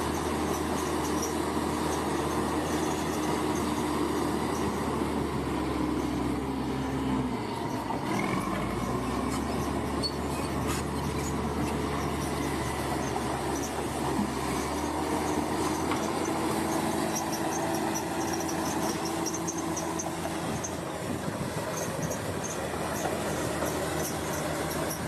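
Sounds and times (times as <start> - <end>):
bulldozer diesel engine running: 0.0 - 25.0
crawler tracks squealing and clanking: 0.0 - 25.0.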